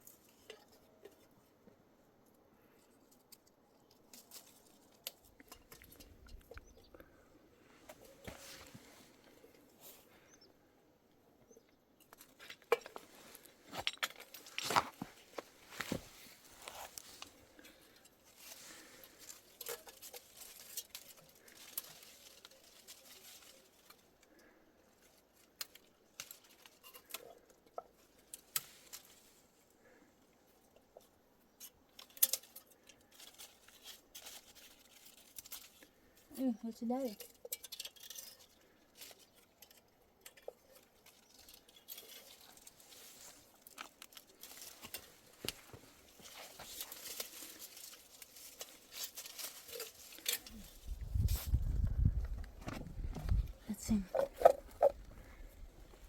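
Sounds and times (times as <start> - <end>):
objects clicking and clinking: 37.1 - 42.8.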